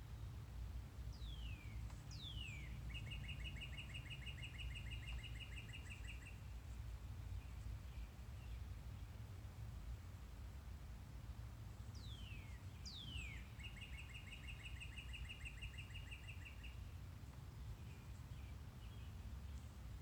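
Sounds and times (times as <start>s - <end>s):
low outdoor rumble: 0.0s - 13.8s, 16.4s - 20.0s
songbird whistles and trill: 12.0s - 16.8s.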